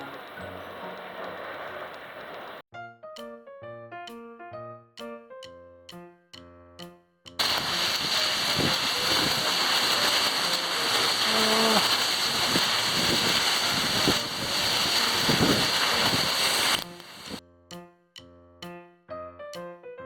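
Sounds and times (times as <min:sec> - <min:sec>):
waterfall roaring: 0:07.4 - 0:17.4.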